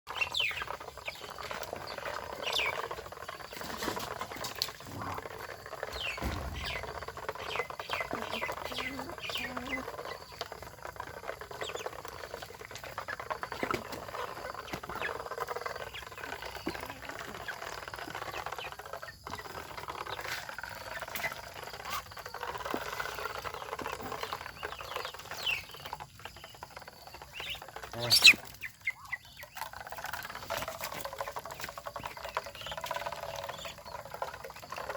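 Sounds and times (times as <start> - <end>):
ducklings peeping: 0.1 - 34.9
ducks pecking and dabbling: 0.1 - 34.9.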